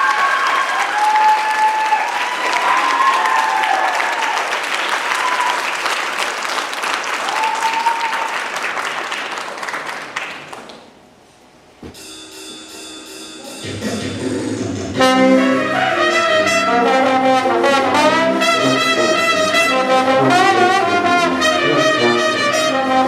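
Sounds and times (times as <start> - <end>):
cheers: 0.0 - 8.8
audience applause: 0.0 - 11.0
band playing: 12.0 - 23.0.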